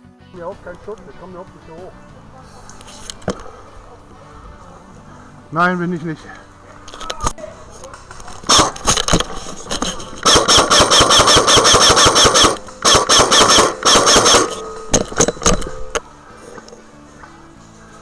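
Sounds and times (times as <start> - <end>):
airsoft full-auto bursts: 8.4 - 16.0
airsoft gun single shots: 8.5 - 15.9
whine under bursts: 8.5 - 16.0.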